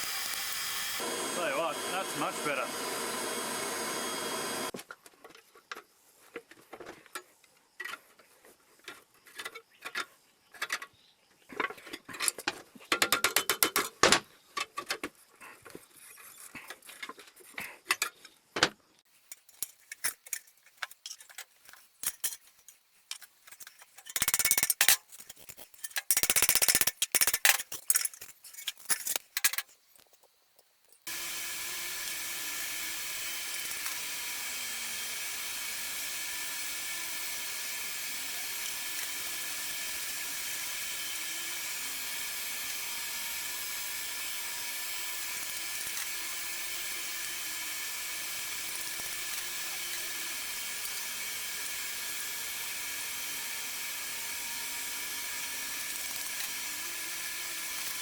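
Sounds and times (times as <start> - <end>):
air blower hissing: 0.0 - 4.7
metal tools clinking: 19.3 - 29.8.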